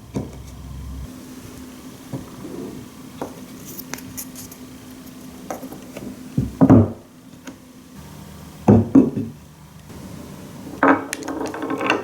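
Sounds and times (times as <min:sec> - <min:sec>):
faint steady hum: 0:00.0 - 0:06.6, 0:07.2 - 0:12.0
marbles rolling on wooden run: 0:10.8 - 0:12.0
wooden knocks and rattles: 0:10.8 - 0:12.0.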